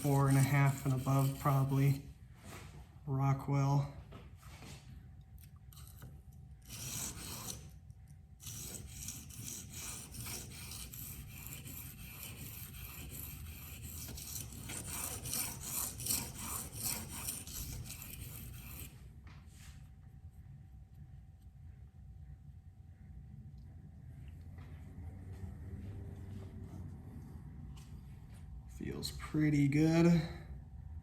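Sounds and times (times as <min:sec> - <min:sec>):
knife scraping on whetstone: 0:00.0 - 0:02.0, 0:05.8 - 0:07.7, 0:08.4 - 0:19.0.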